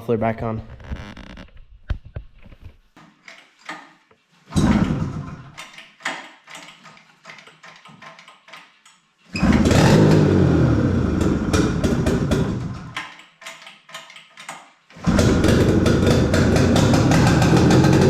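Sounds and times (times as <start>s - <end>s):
snowmobile engine starting and running: 4.6s - 5.5s, 9.4s - 13.0s, 15.0s - 18.0s.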